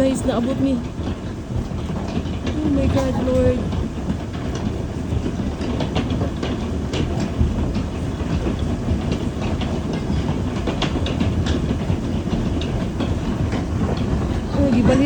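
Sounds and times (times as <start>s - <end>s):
hailstones clattering: 0.0s - 15.0s
heavy precipitation rushing: 10.7s - 15.0s.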